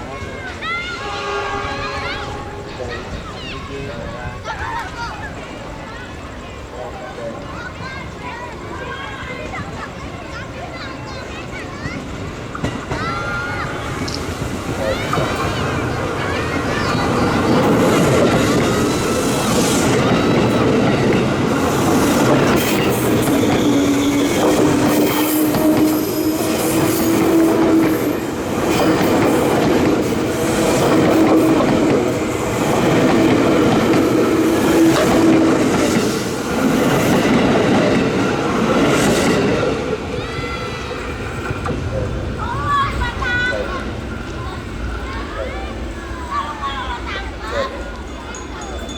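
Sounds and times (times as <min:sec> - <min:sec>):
train rumble: 0:00.0 - 0:48.9
train wheels clattering over rail joints: 0:11.2 - 0:43.2.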